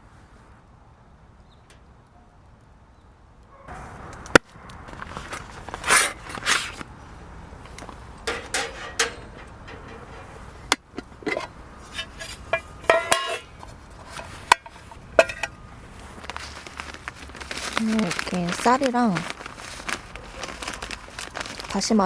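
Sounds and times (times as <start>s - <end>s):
metal cookware clinking: 8.2s - 15.6s.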